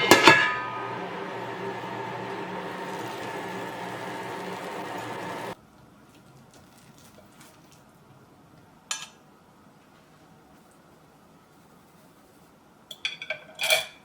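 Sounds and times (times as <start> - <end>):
steady hum with hiss: 0.0 - 14.0
dishware clink: 12.9 - 14.0.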